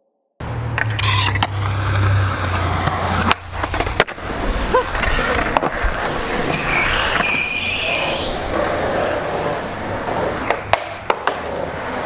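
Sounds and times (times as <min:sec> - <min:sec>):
skateboard wheels rolling on concrete: 0:00.4 - 0:12.0
wooden skateboard clacks: 0:10.4 - 0:11.7.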